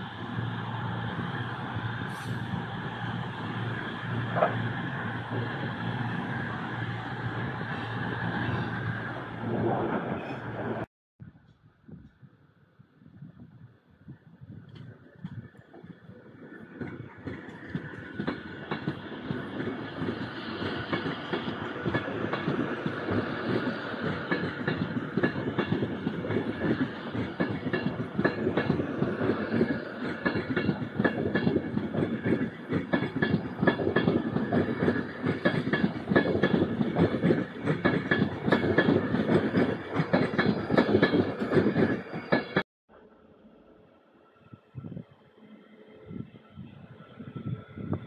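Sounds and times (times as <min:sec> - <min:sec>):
steady train whine: 0:00.0 - 0:10.9, 0:13.5 - 0:48.0
wheels clicking over rail joints: 0:14.6 - 0:42.6.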